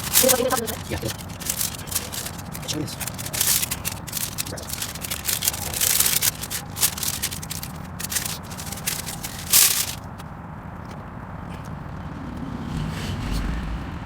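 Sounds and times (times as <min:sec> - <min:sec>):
tape rubbing and scratching: 0:00.0 - 0:10.2.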